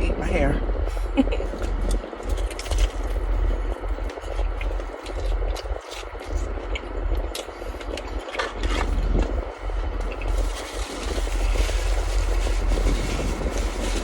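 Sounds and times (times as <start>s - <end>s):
steady low rumble: 0.0s - 14.0s
crunchy food chewing: 1.4s - 14.0s.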